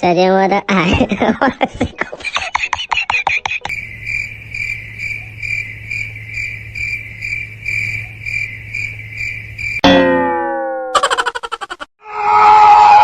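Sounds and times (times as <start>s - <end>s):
cricket chirping: 3.7s - 9.8s, 11.0s - 11.8s
faint low hum: 3.7s - 9.8s.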